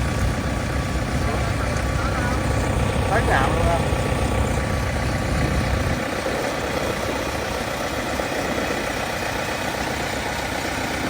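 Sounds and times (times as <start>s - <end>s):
diesel engine under heavy load: 0.0s - 11.0s.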